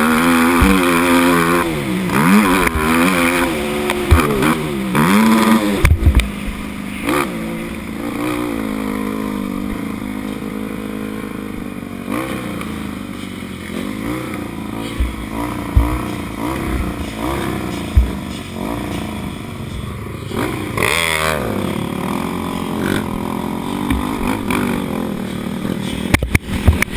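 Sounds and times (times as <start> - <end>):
motorbike engine revving: 0.0 - 26.9
sharp thumps and clatter: 0.4 - 6.6, 13.2 - 20.9, 22.8 - 26.9.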